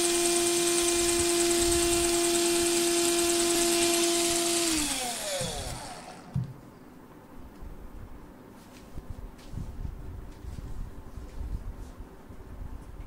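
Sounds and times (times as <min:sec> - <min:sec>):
cordless drill whining: 0:00.0 - 0:06.5.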